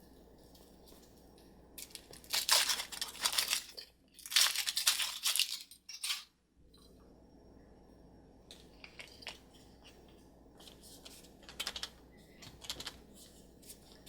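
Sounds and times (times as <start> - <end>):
wrapper crinkling: 1.8 - 6.3.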